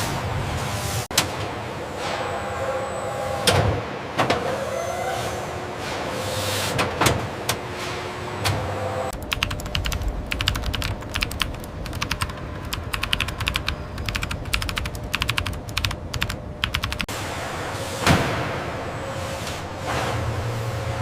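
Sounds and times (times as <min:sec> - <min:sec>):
steady low hum: 0:09.0 - 0:21.0
rapid irregular clicking: 0:09.2 - 0:17.1.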